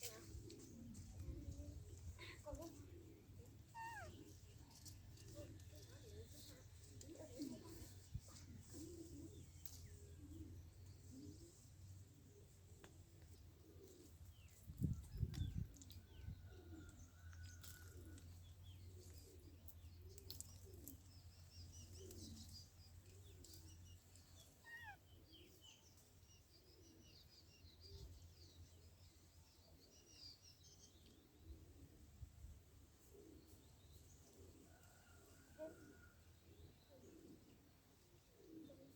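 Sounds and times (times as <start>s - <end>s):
bird cooing: 0.2s - 11.6s, 13.4s - 14.2s, 16.4s - 21.1s, 21.7s - 25.6s, 33.0s - 38.9s.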